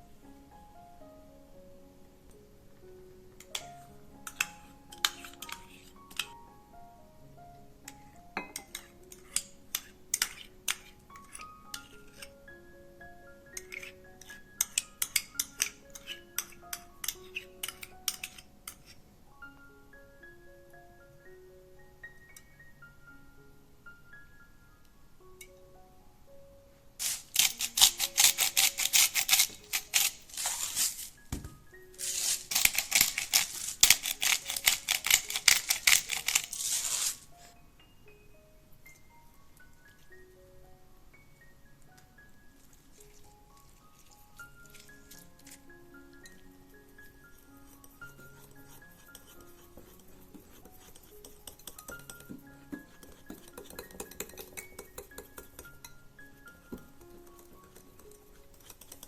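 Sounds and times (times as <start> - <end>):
soft background music: 0.0 - 59.0
mallet percussion background music: 44.2 - 59.0
rapid sharp kitchen tapping: 49.8 - 55.8.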